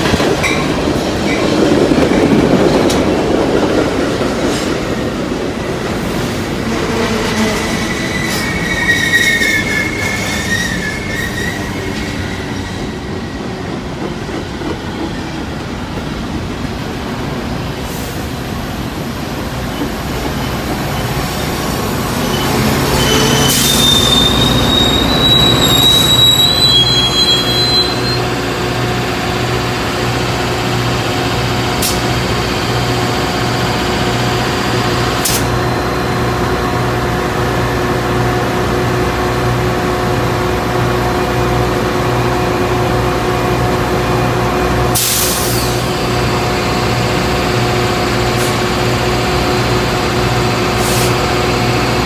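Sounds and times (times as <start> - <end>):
diesel locomotive drone: 0.0 - 52.0
train rolling to a stop: 0.0 - 52.0
high brake squeal: 7.4 - 13.2, 22.2 - 28.4.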